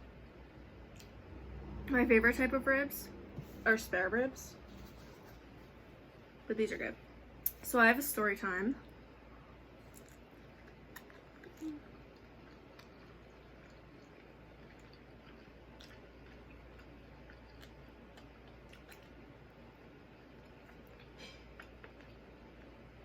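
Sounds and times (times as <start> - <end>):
person chewing: 9.8 - 19.4, 20.3 - 22.8.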